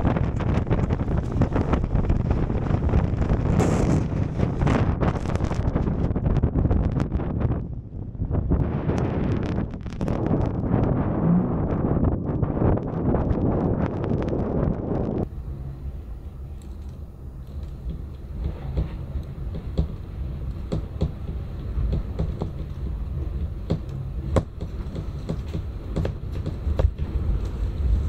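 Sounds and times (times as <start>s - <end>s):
storm wind rumble: 0.0s - 28.0s.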